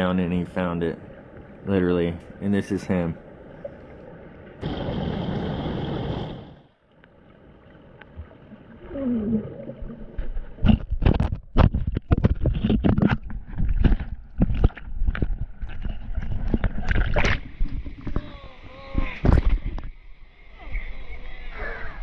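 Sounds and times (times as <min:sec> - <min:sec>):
underwater thumps and splashes: 0:09.6 - 0:18.3.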